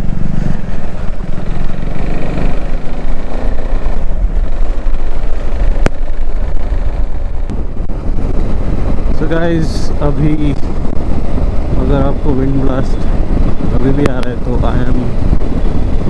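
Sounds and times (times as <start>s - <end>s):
motorcycle engine: 0.0s - 16.0s
wind buffeting microphone: 0.0s - 16.0s.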